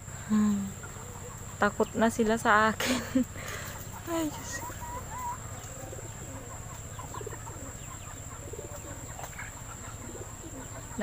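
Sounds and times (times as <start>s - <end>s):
bird chirps and calls: 3.4s - 11.0s.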